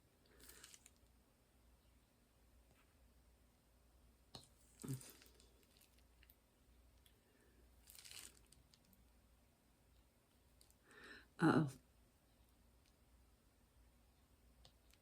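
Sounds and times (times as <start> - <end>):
soft rustle: 0.3 - 1.2, 4.4 - 9.1.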